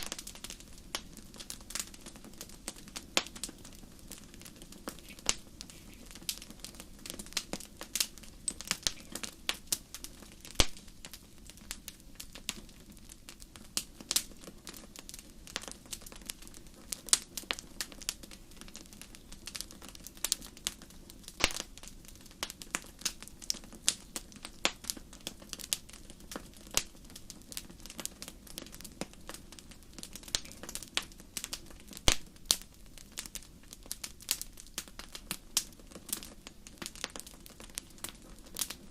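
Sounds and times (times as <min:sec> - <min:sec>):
low rush of flames: 0:00.0 - 0:38.9
wood fire crackling and popping: 0:00.0 - 0:38.9.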